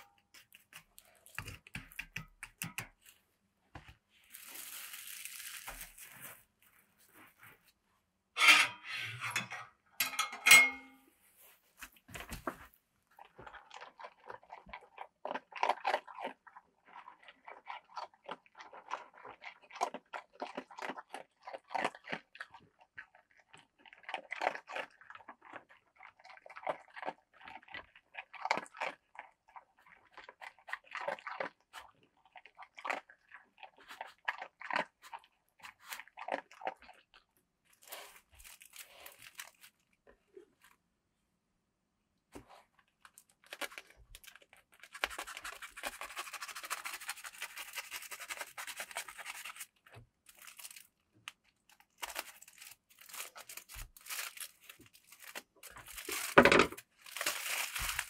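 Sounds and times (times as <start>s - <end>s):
crunchy chewing: 13.1s - 40.7s, 42.5s - 56.3s.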